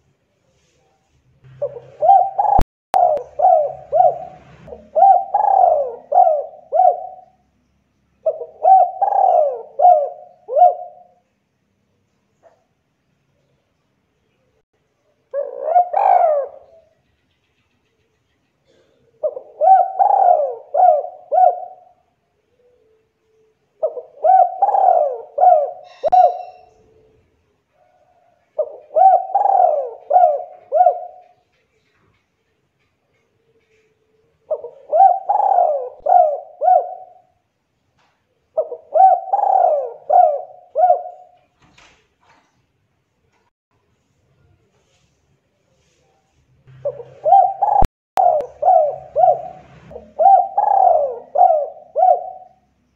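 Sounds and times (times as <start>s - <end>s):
dove cooing: 1.5s - 7.4s, 8.2s - 11.2s, 15.3s - 16.9s, 18.6s - 31.9s, 33.4s - 37.4s, 38.5s - 41.4s, 46.7s - 52.7s.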